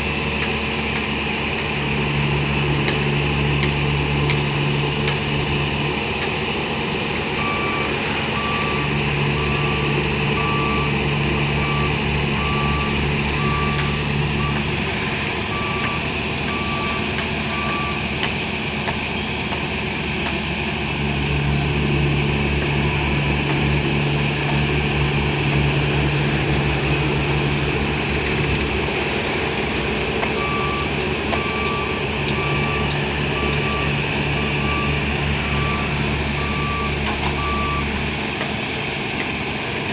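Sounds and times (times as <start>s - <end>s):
heavy vehicle engine running: 0.0s - 39.9s
reversing alarm beeping: 7.2s - 14.8s, 15.4s - 18.1s, 30.3s - 38.0s.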